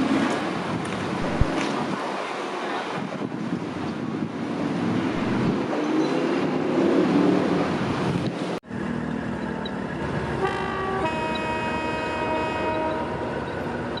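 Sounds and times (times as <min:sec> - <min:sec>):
diesel railcar running: 0:00.0 - 0:14.0
train horn: 0:10.4 - 0:13.4.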